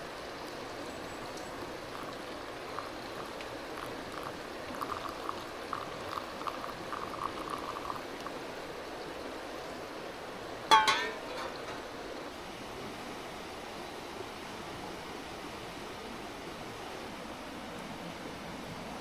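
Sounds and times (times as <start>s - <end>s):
water bubbling and trickling: 0.0s - 9.4s.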